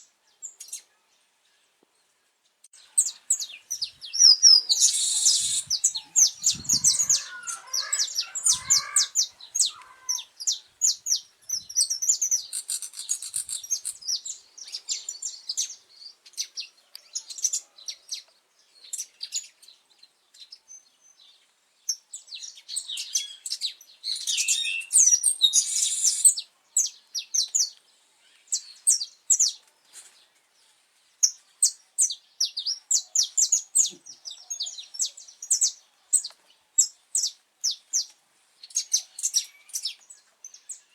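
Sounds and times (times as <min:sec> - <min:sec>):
finch singing: 0:03.0 - 0:16.5.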